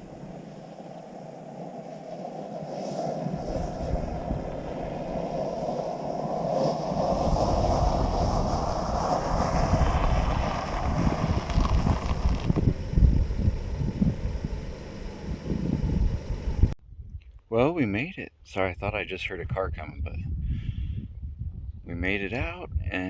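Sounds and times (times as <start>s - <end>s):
vehicle engine and tyre rumble: 0.0s - 16.8s.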